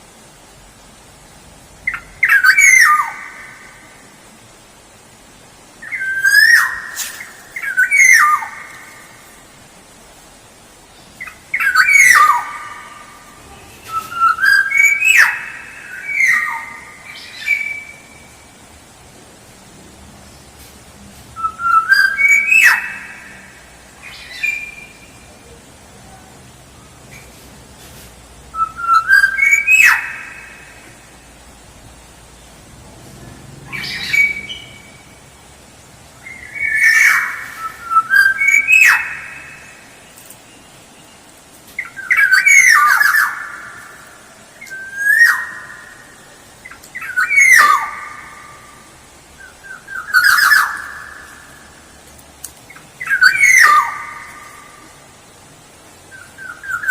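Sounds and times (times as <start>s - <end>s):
bird singing fluty whistles: 5.8s - 8.6s, 13.8s - 18.1s, 21.4s - 23.2s, 28.6s - 30.5s, 44.6s - 45.6s.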